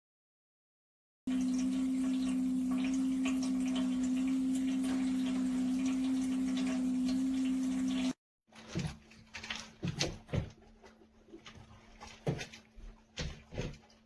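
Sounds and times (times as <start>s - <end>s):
pump humming: 1.3s - 8.1s.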